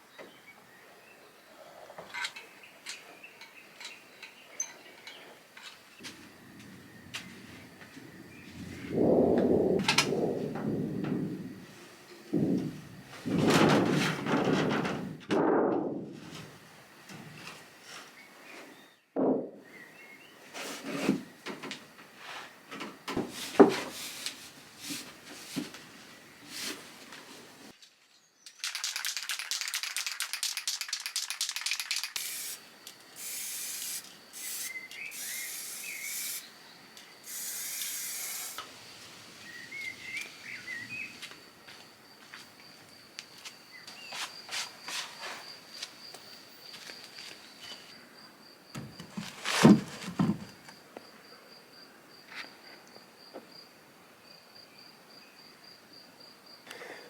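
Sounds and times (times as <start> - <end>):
faint bird chirps: 34.4 - 37.3, 39.4 - 41.3.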